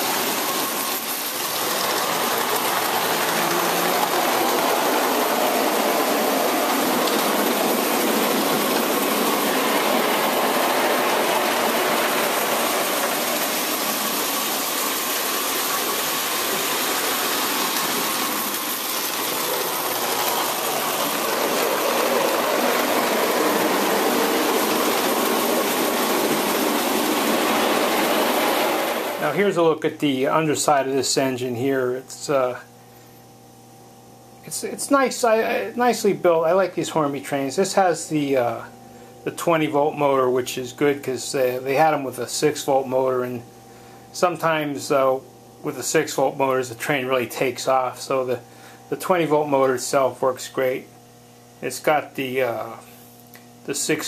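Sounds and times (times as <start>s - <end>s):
toy train motor whirring: 14.8s - 27.6s.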